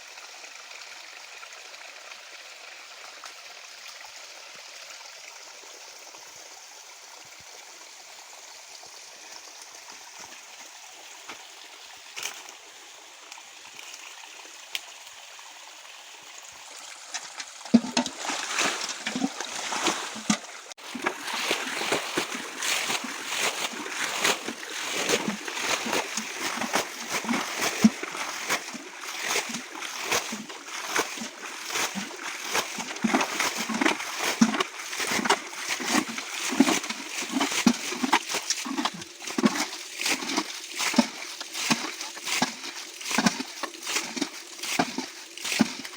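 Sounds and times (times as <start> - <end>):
stream trickling: 0.0 - 45.9
splashing in shallow water: 16.7 - 45.9.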